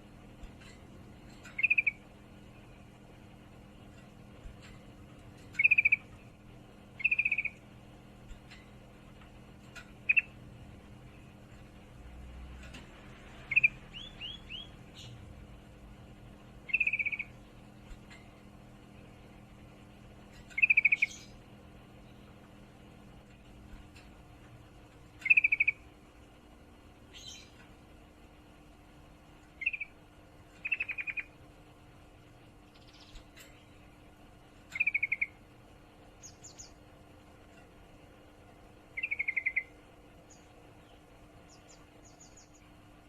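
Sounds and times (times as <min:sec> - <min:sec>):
faint steady hum: 0:00.0 - 0:43.0
bird chattering calls: 0:01.4 - 0:02.0, 0:05.5 - 0:06.1, 0:07.0 - 0:07.6, 0:16.7 - 0:17.4, 0:20.5 - 0:21.3, 0:25.2 - 0:25.8, 0:29.6 - 0:30.0, 0:30.6 - 0:31.3, 0:34.7 - 0:35.4, 0:39.0 - 0:39.7.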